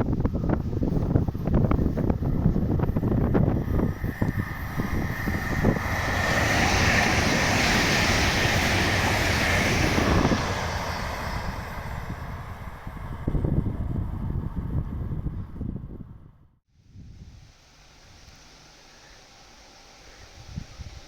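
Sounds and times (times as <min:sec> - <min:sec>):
wind buffeting microphone: 0:00.0 - 0:17.5, 0:20.2 - 0:21.0
train wheels rushing on rails: 0:00.2 - 0:13.7.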